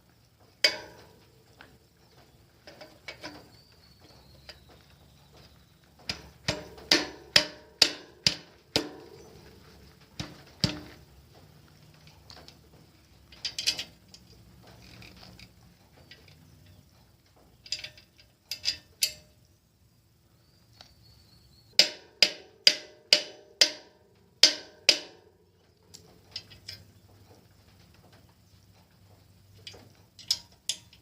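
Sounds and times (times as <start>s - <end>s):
metal tools handling: 13.3s - 16.9s, 17.5s - 19.4s.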